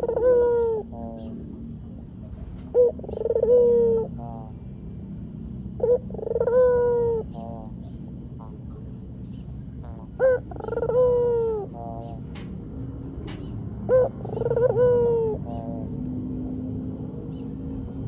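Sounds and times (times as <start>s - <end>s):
dove cooing: 0.0s - 18.0s
steady low hum: 0.0s - 18.0s.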